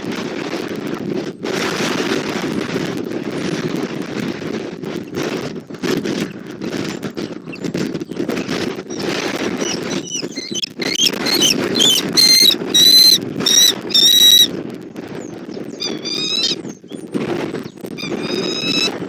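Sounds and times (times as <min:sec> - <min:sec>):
wind buffeting microphone: 0:00.0 - 0:19.0
eagle chittering calls: 0:08.9 - 0:14.5, 0:15.8 - 0:17.0, 0:18.0 - 0:19.0.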